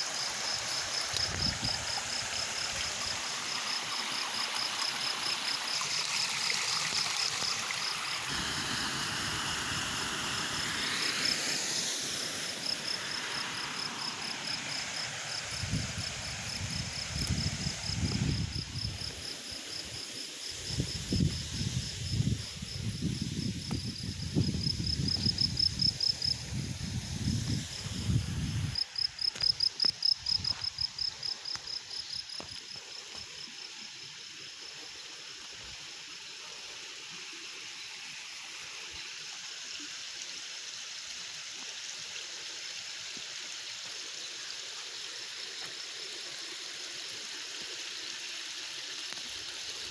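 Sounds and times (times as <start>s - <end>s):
high pulsing insect trill: 0.0s - 38.0s
stream water running: 0.0s - 49.9s.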